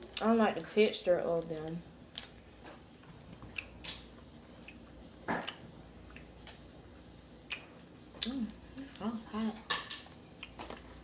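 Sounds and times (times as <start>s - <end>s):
wet chewing and mouth clicks: 1.3s - 6.8s, 7.4s - 9.1s, 10.0s - 11.0s.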